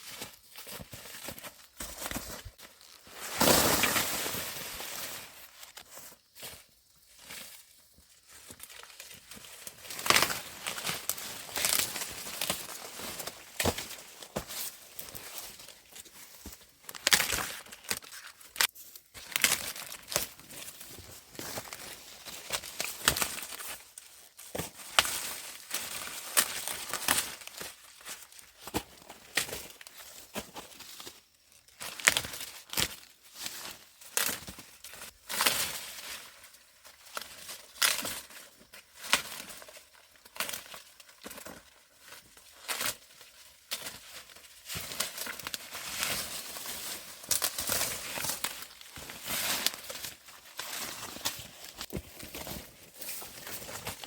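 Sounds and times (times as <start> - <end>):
dry corn leaves rustling: 0.0 - 54.0
corn ears snapping off stalks: 9.9 - 12.6.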